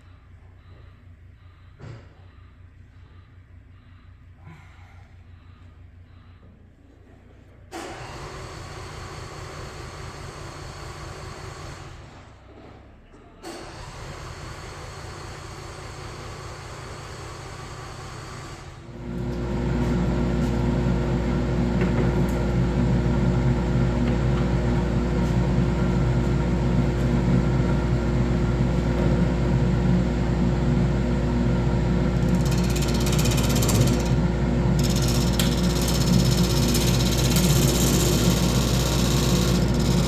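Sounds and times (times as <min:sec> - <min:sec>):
power tool motor humming: 0:23.3 - 0:40.0.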